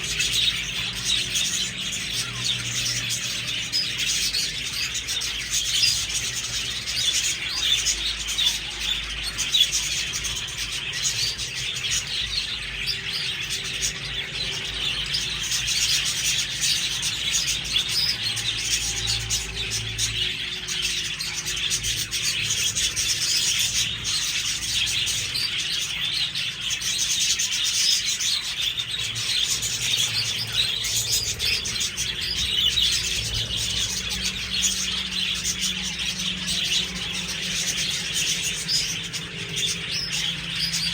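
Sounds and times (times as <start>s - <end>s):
budgerigars chattering and chirping: 0.0s - 40.9s.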